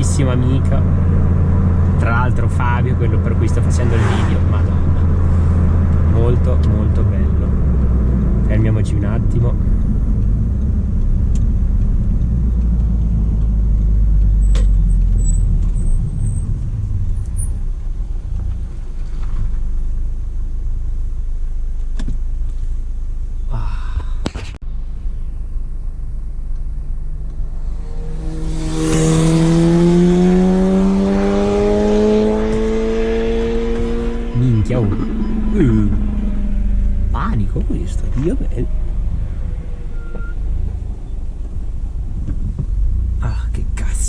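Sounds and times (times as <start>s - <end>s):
car engine revving pulling away: 0.0s - 19.9s, 25.8s - 43.9s
car engine low rumble: 0.0s - 44.0s
engine clicks: 9.3s - 19.7s.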